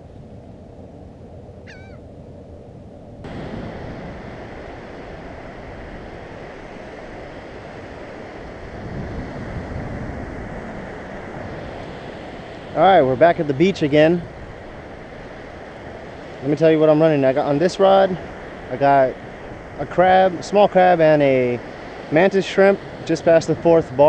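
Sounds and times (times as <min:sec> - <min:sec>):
short bird call: 0:01.6 - 0:02.0
surf breaking on beach: 0:03.2 - 0:24.0.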